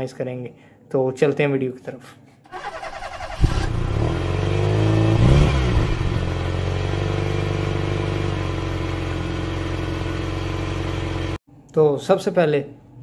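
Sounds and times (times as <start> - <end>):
car engine revving and idling: 3.2 - 11.4.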